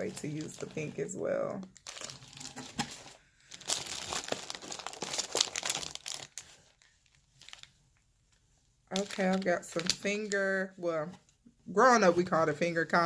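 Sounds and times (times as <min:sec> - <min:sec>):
packaging crinkling: 0:01.6 - 0:07.8, 0:08.9 - 0:10.4.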